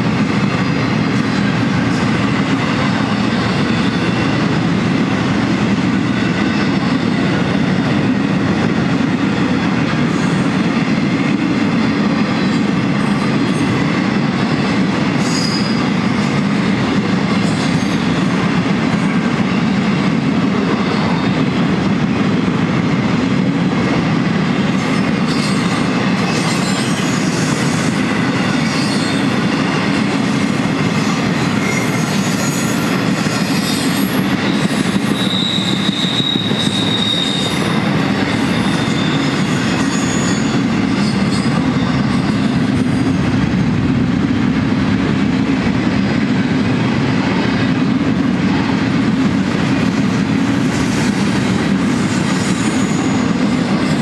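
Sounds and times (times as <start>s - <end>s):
freight train wheels rumbling: 0.0s - 54.0s
high-pitched wheel squeals: 15.2s - 15.9s, 31.6s - 42.5s.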